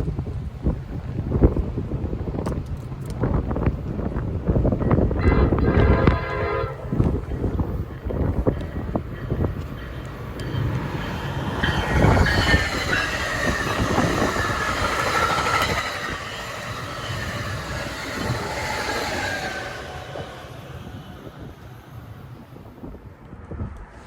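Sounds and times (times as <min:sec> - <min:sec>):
train wheels rumbling on rail: 0:00.0 - 0:24.0
high steady whining tones: 0:04.8 - 0:22.8.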